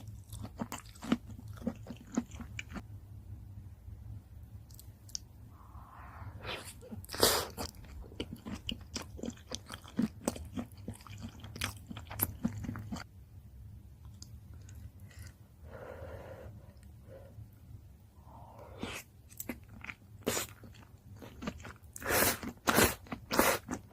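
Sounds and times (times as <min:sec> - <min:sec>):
person chewing with mouth clicks: 0:00.0 - 0:02.8, 0:06.9 - 0:13.1.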